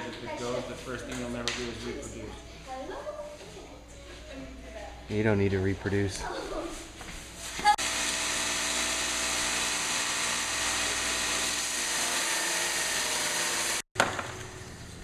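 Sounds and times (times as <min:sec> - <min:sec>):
machine whirring: 0:07.7 - 0:13.8.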